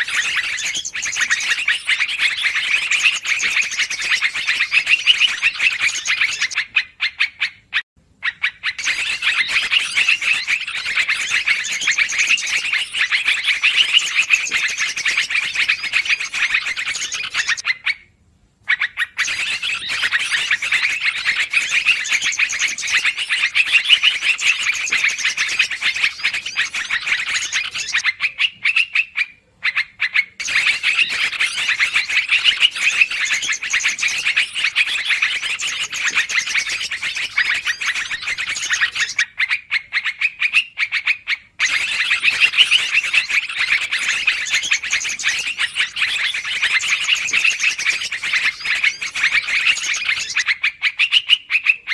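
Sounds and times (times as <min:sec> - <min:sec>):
bulbuls chattering: 0:00.0 - 0:06.6, 0:08.8 - 0:17.6.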